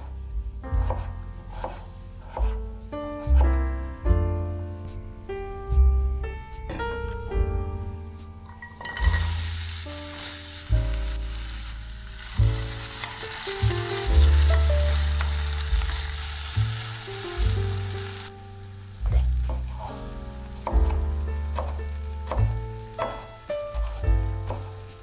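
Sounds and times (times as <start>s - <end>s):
potato strips sizzling in oil: 8.5s - 25.0s.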